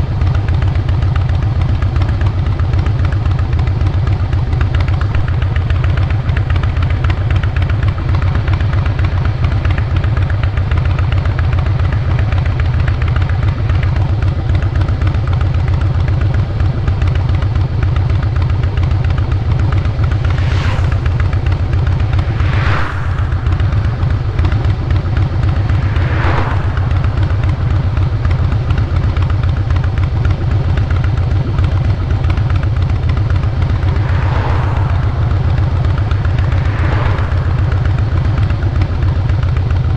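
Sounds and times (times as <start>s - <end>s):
motorcycle exhaust running: 0.0s - 39.9s
whooshes falling in pitch: 19.4s - 29.2s, 33.0s - 39.3s.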